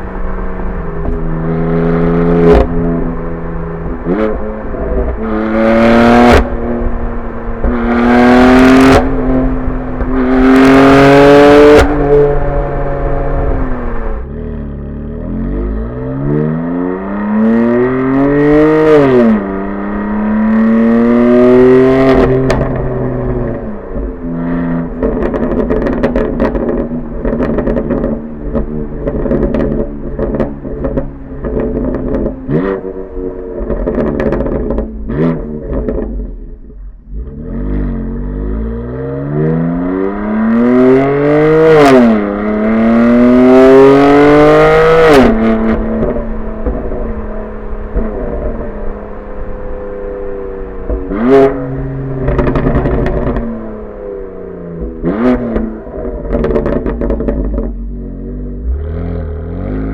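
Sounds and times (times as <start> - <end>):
car engine accelerating hard: 0.0 - 59.9
exhaust pops and crackles: 0.9 - 1.4, 8.9 - 10.4, 22.1 - 36.9, 45.0 - 49.0, 50.8 - 53.8, 54.7 - 58.0.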